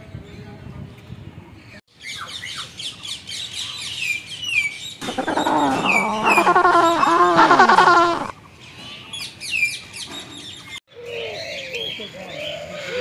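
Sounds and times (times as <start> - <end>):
small birds chirping: 1.9 - 13.0
harsh bird squawking: 5.0 - 8.3.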